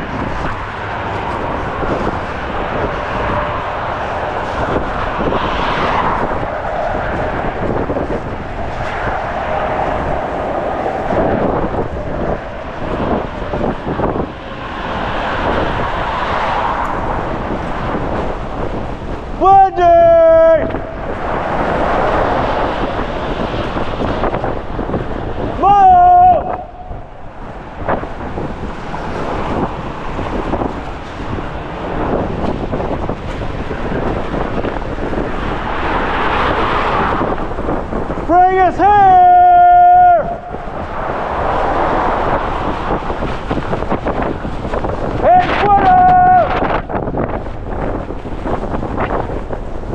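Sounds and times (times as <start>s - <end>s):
gusting wind on microphone: 0.0s - 49.9s.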